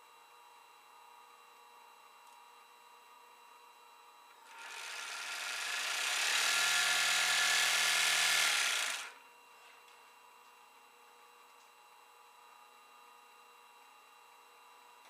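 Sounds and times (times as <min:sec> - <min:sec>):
overlock sewing machine running: 0:04.4 - 0:09.2.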